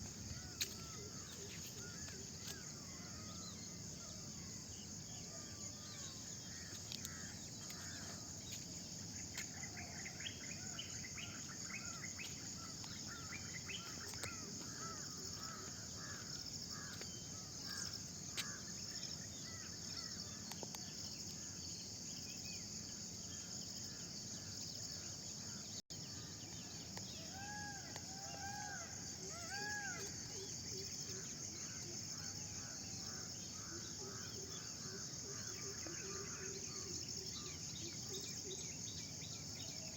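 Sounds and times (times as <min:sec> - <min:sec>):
insect trill: 0:00.0 - 0:39.9
swooping bird calls: 0:09.4 - 0:21.6, 0:23.2 - 0:39.9.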